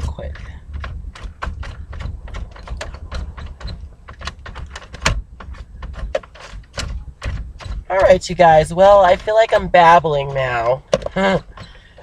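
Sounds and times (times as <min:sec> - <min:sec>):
small knocks: 0:00.0 - 0:12.0.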